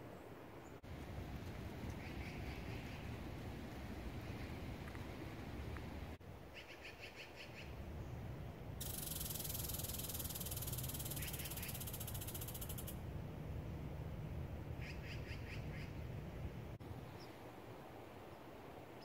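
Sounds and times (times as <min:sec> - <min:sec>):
low steady rumble: 0:07.7 - 0:18.7
bird chirps: 0:08.8 - 0:12.9.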